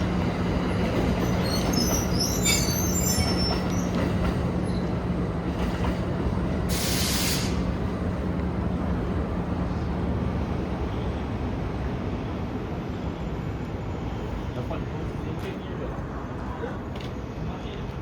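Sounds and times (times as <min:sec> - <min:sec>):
train rumbling: 0:00.0 - 0:18.0
short burst of hiss: 0:06.7 - 0:07.6.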